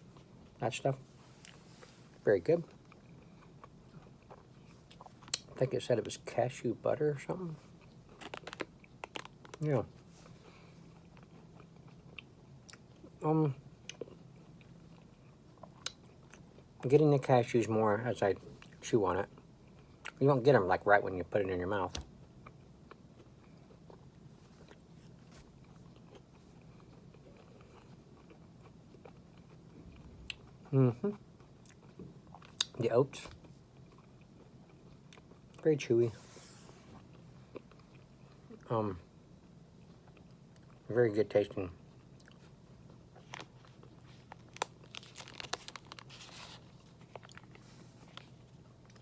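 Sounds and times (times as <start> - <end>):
person chewing: 1.4 - 5.6, 7.7 - 13.2, 13.8 - 16.7, 22.4 - 32.8, 33.4 - 35.6, 37.0 - 38.7, 41.9 - 49.0
wrapper crinkling: 43.2 - 48.4.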